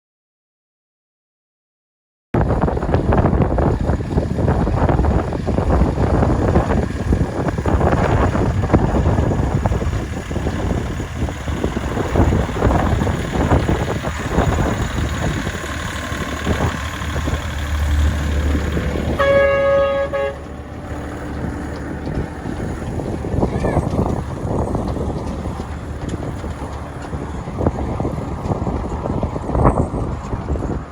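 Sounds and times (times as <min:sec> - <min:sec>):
wind rumble on microphone: 0:02.4 - 0:30.9
locomotive horn toot: 0:19.0 - 0:21.2.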